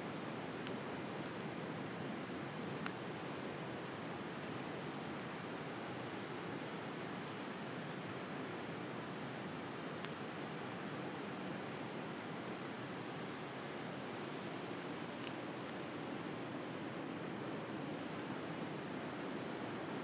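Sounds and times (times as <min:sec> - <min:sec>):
bonfire crackling and popping: 0:08.4 - 0:16.0.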